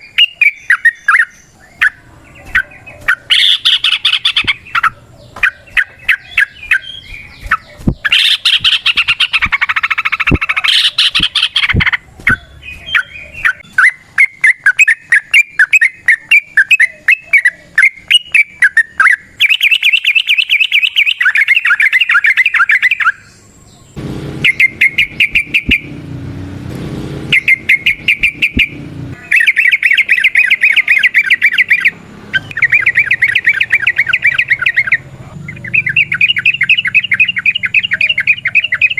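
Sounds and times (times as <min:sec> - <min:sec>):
bulbul singing rapid chattering notes: 0:00.0 - 0:23.3, 0:24.3 - 0:26.0, 0:27.2 - 0:38.9.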